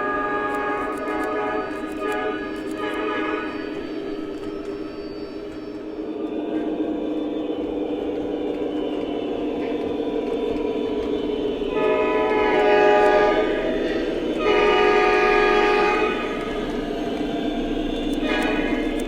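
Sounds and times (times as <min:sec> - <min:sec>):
locomotive horn blasts: 0:00.0 - 0:03.6, 0:11.7 - 0:16.5, 0:18.2 - 0:19.0.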